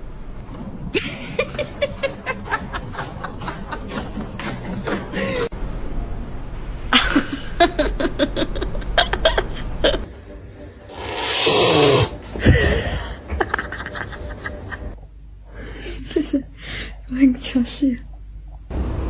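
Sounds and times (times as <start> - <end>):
cat hissing: 10.9 - 12.2.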